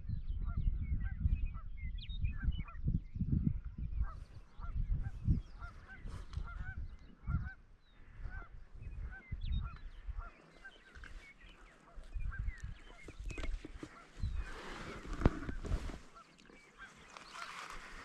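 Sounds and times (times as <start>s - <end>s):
wind on microphone: 0.0s - 18.0s
flock of birds honking: 4.1s - 18.0s.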